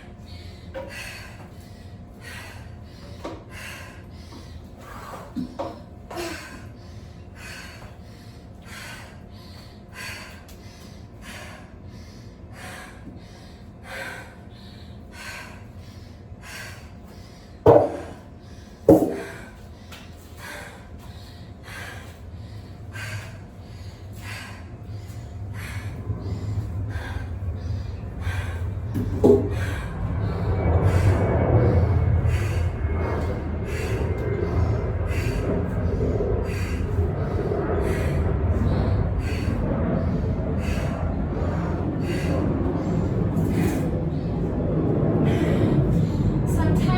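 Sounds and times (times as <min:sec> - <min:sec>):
person breathing hard and fast: 0:00.0 - 0:46.9
low rumble: 0:20.4 - 0:46.9.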